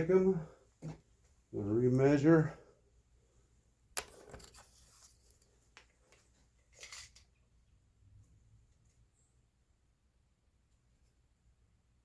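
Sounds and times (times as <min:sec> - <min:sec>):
soft rustle: 0:04.1 - 0:07.3.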